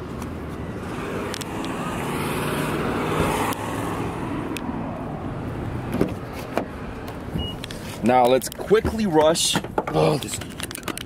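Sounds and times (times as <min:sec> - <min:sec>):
vehicle rushing past: 0:00.6 - 0:07.3.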